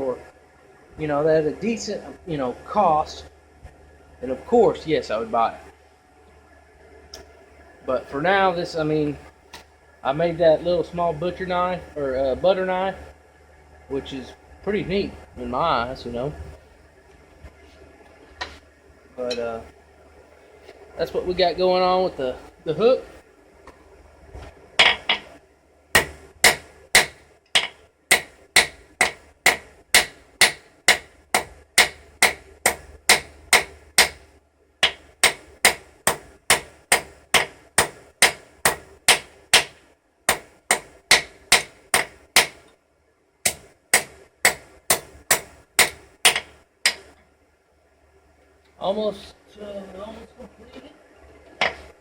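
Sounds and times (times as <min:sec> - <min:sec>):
hammer striking metal: 0:24.8 - 0:25.2, 0:26.0 - 0:34.2, 0:34.8 - 0:42.6, 0:43.4 - 0:47.1.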